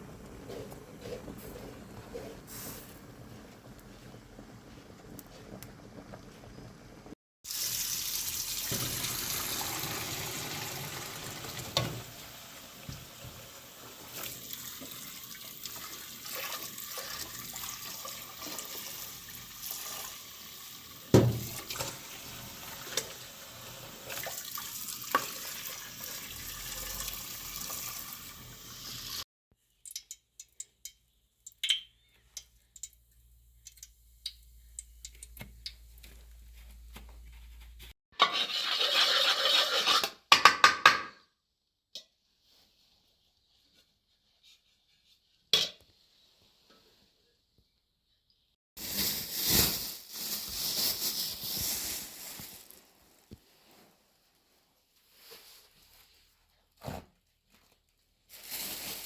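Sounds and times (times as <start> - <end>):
water running and splashing: 7.4 - 29.2.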